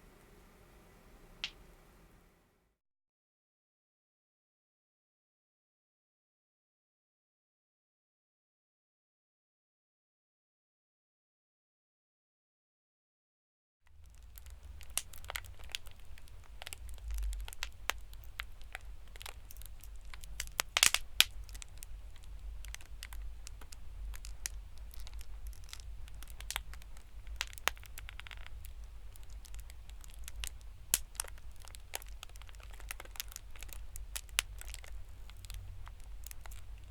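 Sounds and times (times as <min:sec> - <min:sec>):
bubble wrap popping crackles: 0:13.9 - 0:36.9
steady low rumble: 0:13.9 - 0:36.9.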